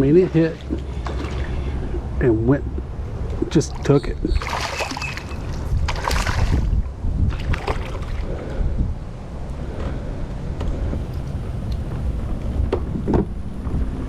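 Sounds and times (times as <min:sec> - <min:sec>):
water splashing: 0:00.0 - 0:02.2, 0:03.4 - 0:08.4
wind buffeting microphone: 0:00.0 - 0:14.0.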